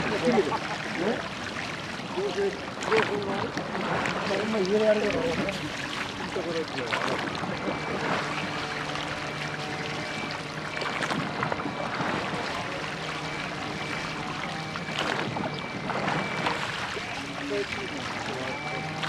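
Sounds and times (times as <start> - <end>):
water splashing with oar strokes: 0.0 - 19.0.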